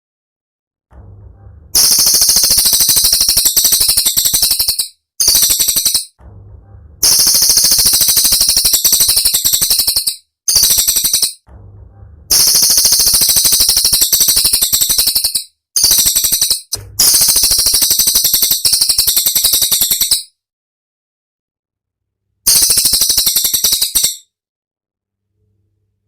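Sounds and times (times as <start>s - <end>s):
songbird high rapid trill: 1.8s - 6.1s, 7.0s - 11.4s, 12.3s - 20.2s, 22.5s - 24.2s.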